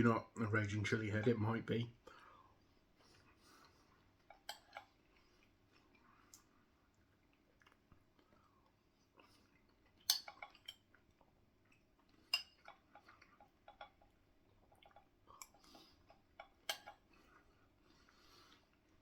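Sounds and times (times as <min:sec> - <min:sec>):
spoon clinking against a bowl: 0:10.1 - 0:10.8.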